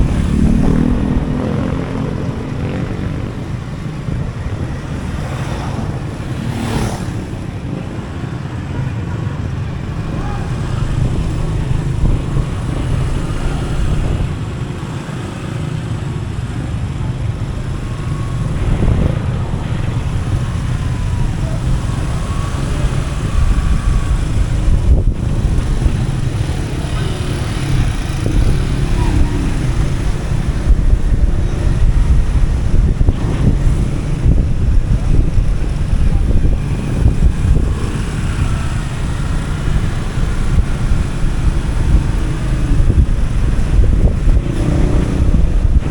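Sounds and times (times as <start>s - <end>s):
motorbike engine running: 0.0s - 4.8s
wind rushing over microphone: 0.0s - 45.9s.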